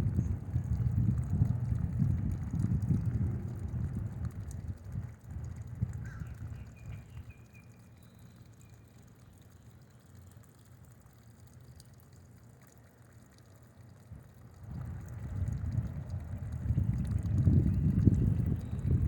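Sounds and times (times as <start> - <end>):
low rumble: 0.0 - 5.7, 14.6 - 19.0
bird chirping faintly: 6.1 - 10.5.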